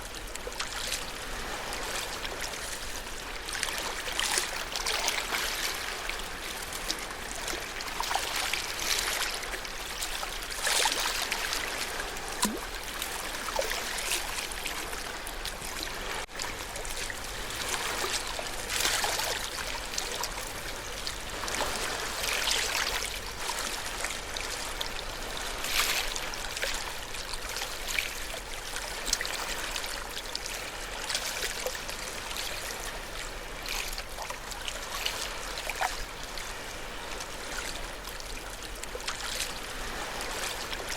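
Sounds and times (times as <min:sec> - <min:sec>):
small waves lapping at shore: 0:00.0 - 0:40.9.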